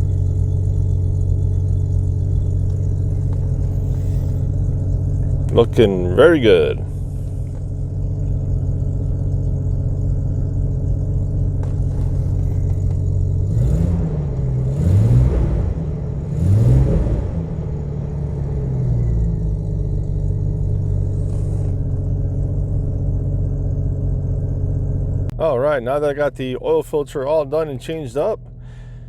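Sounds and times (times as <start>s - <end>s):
car engine idling and revving: 0.0s - 29.0s.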